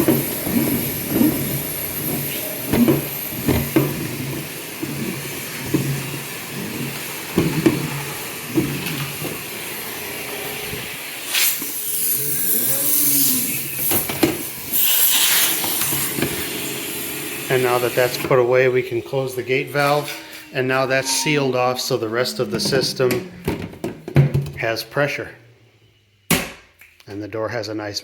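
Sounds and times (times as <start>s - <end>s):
hose knocking and rattling in pipe: 0.0s - 9.4s.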